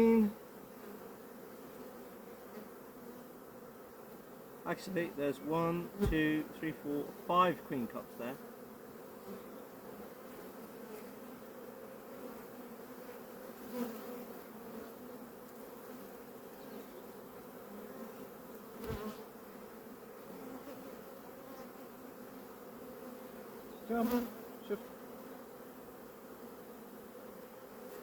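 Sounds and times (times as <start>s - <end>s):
bees humming: 0.0s - 28.0s
light knocks on hive: 6.0s - 6.4s, 18.8s - 19.2s.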